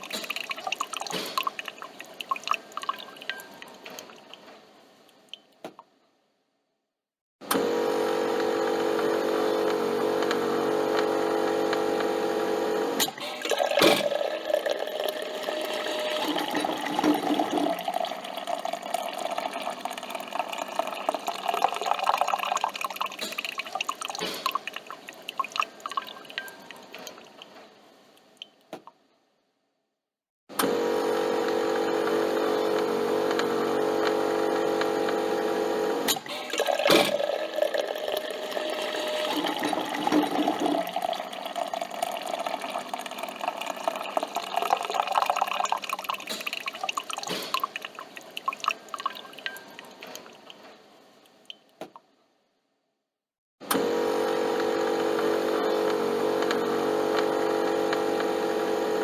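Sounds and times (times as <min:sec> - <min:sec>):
coffee dripping into cup: 0:00.0 - 0:04.5, 0:13.4 - 0:27.5, 0:36.4 - 0:50.6
coffee machine pump humming: 0:07.5 - 0:26.9, 0:30.6 - 0:50.3, 0:53.7 - 0:59.0.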